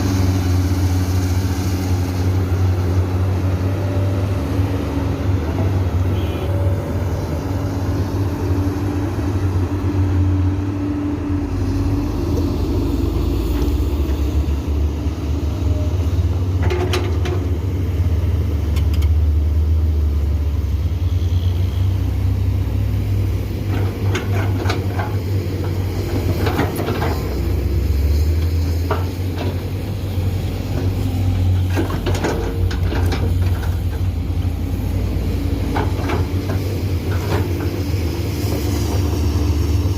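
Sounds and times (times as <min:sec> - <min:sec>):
excavator diesel engine rumbling: 0:00.0 - 0:39.9
excavator clanks and knocks: 0:12.3 - 0:14.5, 0:16.4 - 0:17.8, 0:23.5 - 0:39.7.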